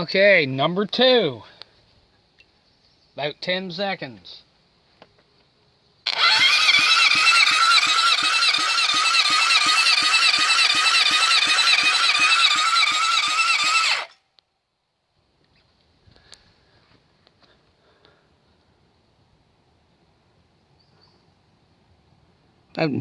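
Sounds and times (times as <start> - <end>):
car engine cranking on starter: 6.1 - 14.1.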